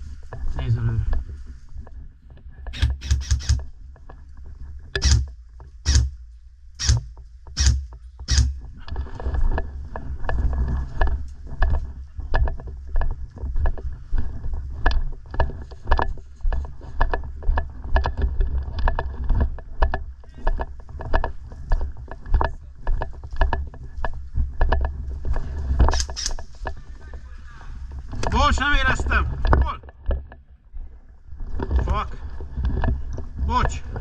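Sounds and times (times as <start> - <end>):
footsteps walking: 2.7 - 17.9.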